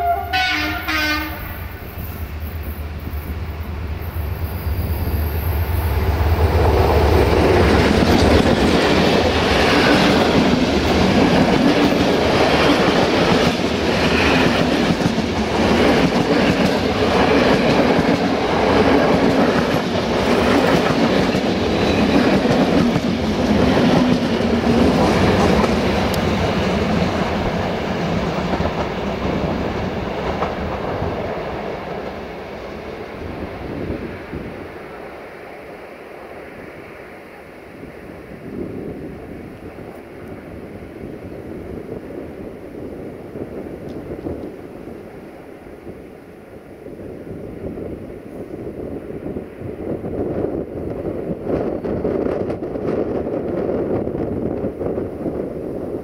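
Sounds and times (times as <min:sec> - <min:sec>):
two-tone train horn: 0:00.0 - 0:02.0.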